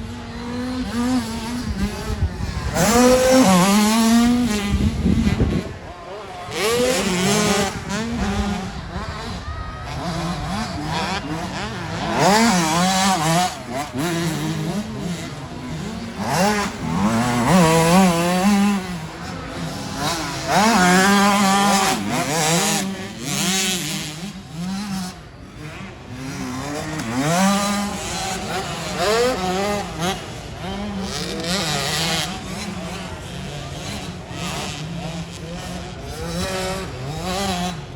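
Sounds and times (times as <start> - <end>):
motocross bike engines revving: 0.0 - 37.9.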